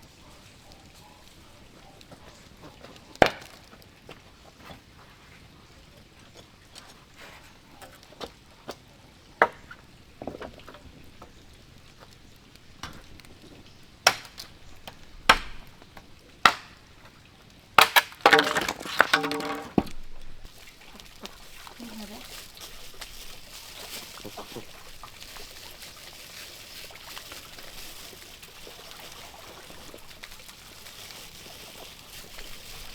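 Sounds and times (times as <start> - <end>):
wood chopping blows: 3.2 - 3.7, 14.0 - 15.7, 16.4 - 16.8, 17.8 - 20.0.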